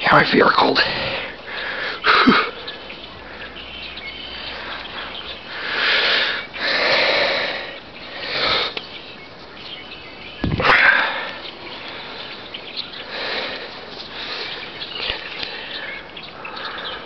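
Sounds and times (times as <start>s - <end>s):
person breathing hard: 0.8s - 3.6s, 4.4s - 8.8s, 10.6s - 12.4s, 13.0s - 17.0s.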